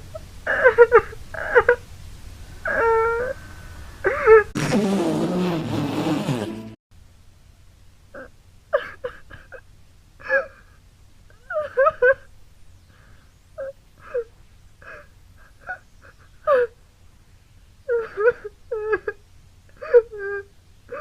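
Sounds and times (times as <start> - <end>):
whimpering sobs: 0.1 - 1.8, 2.6 - 4.6, 8.2 - 9.6, 10.2 - 12.3, 13.6 - 16.8, 17.9 - 21.0
cartoon character wailing: 2.7 - 3.4.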